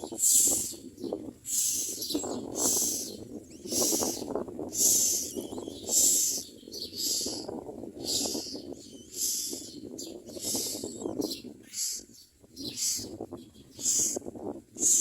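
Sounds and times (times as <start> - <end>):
nestlings hissing screeches: 1.5 - 2.0, 2.6 - 3.1, 3.7 - 4.2.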